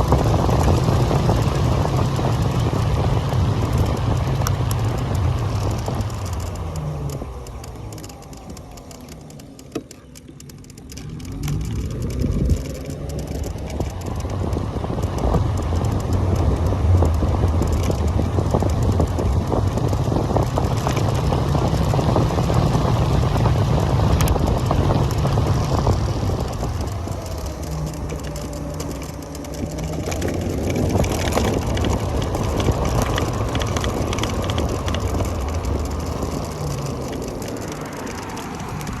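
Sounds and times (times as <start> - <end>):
faint electric motor whine: 0.0 - 39.0
road noise: 0.0 - 39.0
tyres crackling on surface: 0.0 - 39.0
wind rumble: 0.0 - 39.0.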